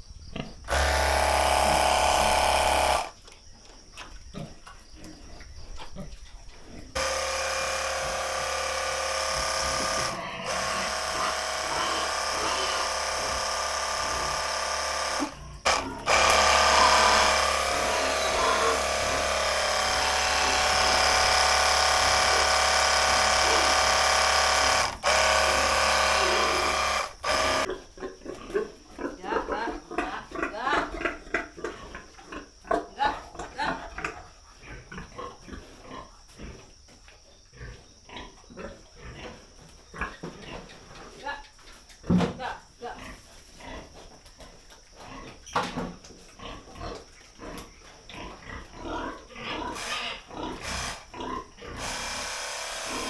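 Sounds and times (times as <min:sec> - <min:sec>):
pressure washer running: 0:00.7 - 0:03.1, 0:07.0 - 0:27.7, 0:50.6 - 0:51.1, 0:51.8 - 0:53.0.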